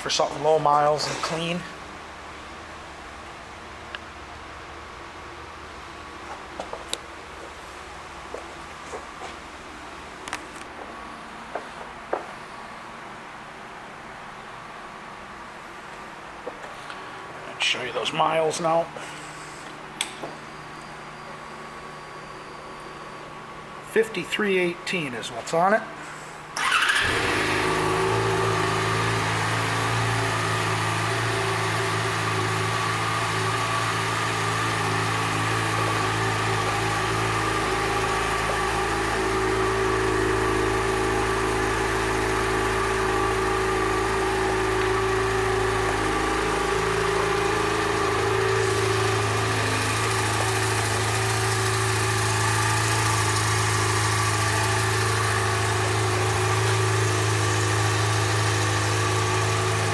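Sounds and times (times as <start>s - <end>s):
motorcycle engine idling: 26.6s - 59.9s.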